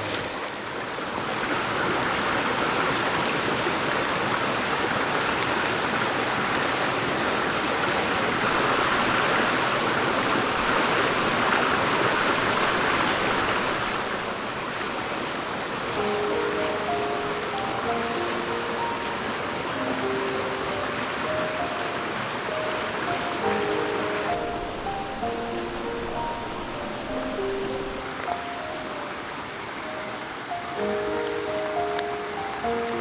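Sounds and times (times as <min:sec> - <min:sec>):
water rushing over rocks: 0:00.0 - 0:33.0.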